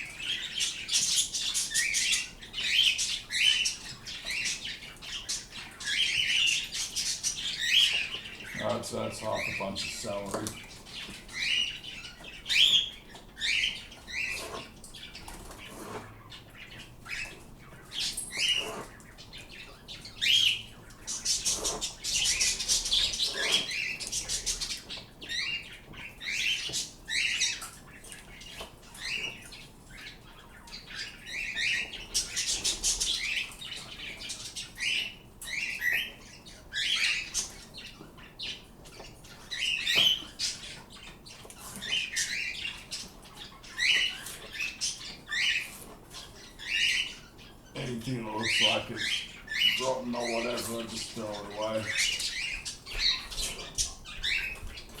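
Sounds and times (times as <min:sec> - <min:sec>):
pet birds chirping: 0:00.0 - 0:55.0.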